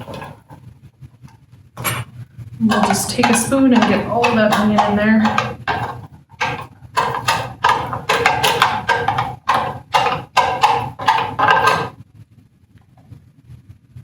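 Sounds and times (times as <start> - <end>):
spoon scraping against bowl: 0.0 - 0.6, 1.8 - 12.0.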